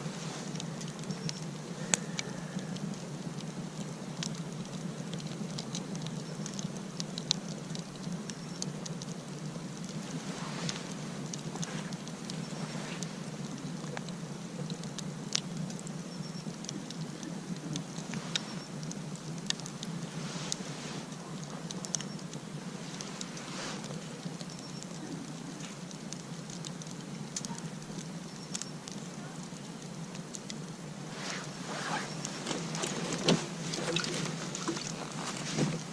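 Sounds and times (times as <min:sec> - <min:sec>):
campfire crackling: 0:00.0 - 0:35.9
fire snaps and pops: 0:00.0 - 0:35.9.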